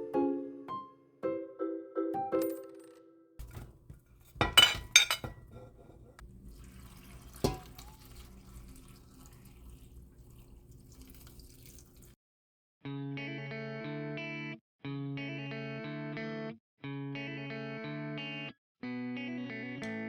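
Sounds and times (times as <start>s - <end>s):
kitchenware clinking and clattering: 3.4s - 8.7s.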